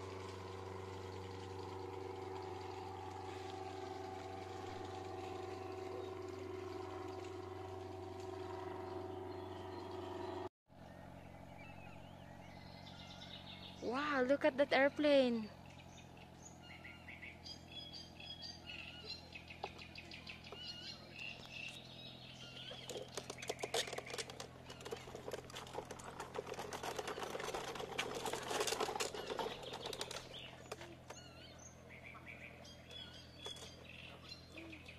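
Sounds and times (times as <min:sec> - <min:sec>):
small birds chirping: 0:08.9 - 0:34.9.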